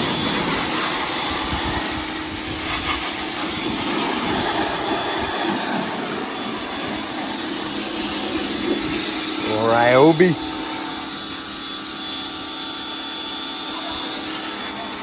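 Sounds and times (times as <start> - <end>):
pressure washer spraying water: 0.0 - 15.0.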